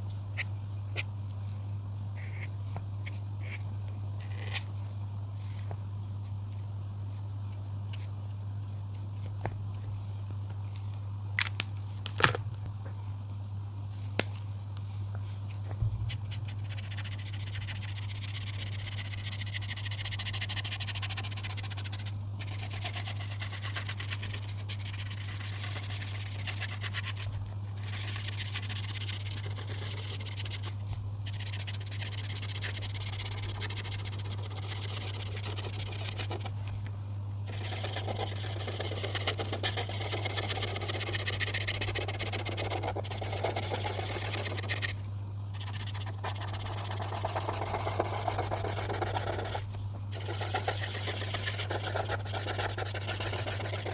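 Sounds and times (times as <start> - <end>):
steady low hum: 0.0 - 53.9
coloring strokes on paper: 16.3 - 36.5, 37.5 - 53.9.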